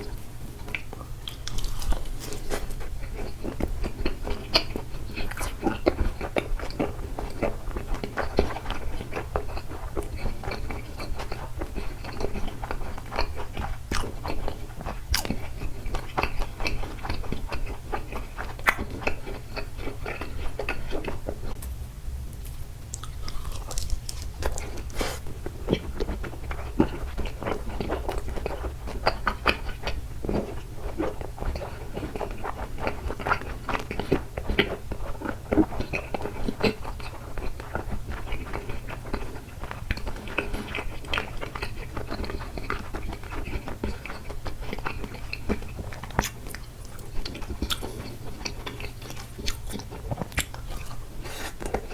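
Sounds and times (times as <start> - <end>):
close chewing and mouth smacks: 0.0 - 21.7, 22.3 - 51.9.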